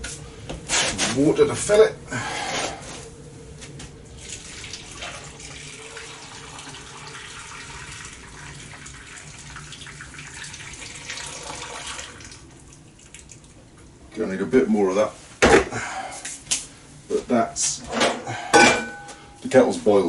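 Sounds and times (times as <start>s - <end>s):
water pouring into a pot: 4.1s - 13.6s.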